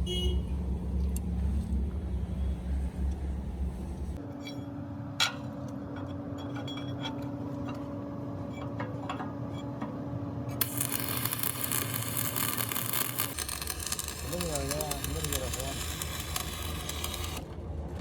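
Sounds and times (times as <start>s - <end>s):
machine hum: 10.6s - 18.0s.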